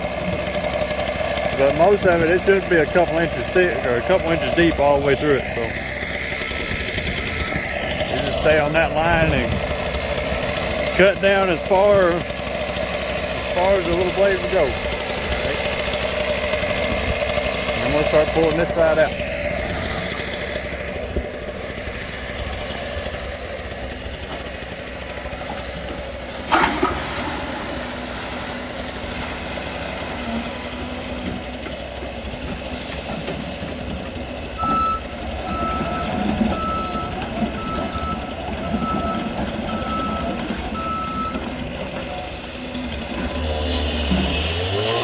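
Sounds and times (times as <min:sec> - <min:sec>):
heavy machine engine running: 0:00.0 - 0:45.0
sharp metal clank: 0:26.5 - 0:29.4
backup alarm beeping: 0:34.6 - 0:41.4.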